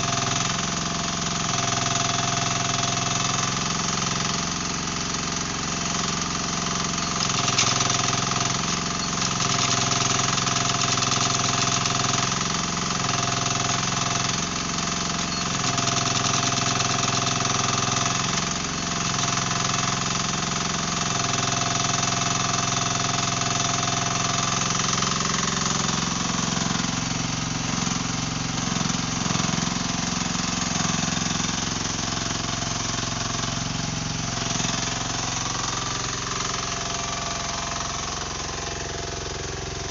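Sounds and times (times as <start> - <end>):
mini excavator engine running: 0.0 - 39.9.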